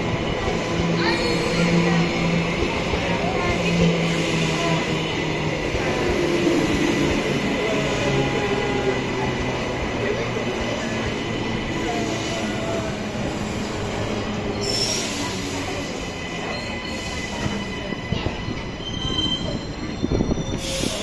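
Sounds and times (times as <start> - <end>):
train rumbling slowly: 0.0 - 21.0
high-pitched wheel squeals: 18.5 - 21.0.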